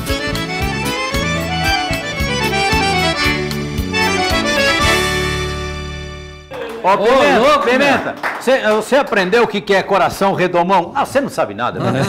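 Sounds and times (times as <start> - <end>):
accordion-led band playing: 0.0 - 6.5
bass: 0.0 - 6.5.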